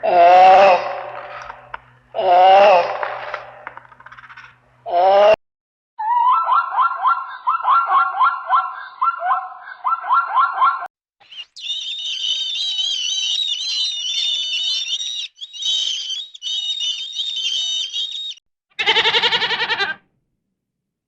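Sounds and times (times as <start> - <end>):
small birds chirping: 11.2 - 19.4
goat bleating: 18.8 - 20.0.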